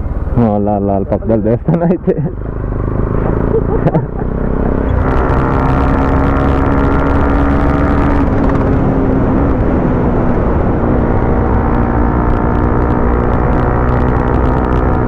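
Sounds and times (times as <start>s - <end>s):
motorcycle engine running: 0.0s - 15.0s
road and wind rumble: 0.0s - 15.0s.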